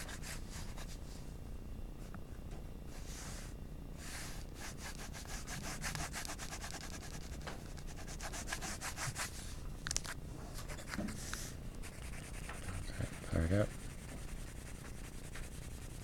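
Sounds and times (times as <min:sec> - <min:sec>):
pencil shading on paper: 0:11.8 - 0:16.0.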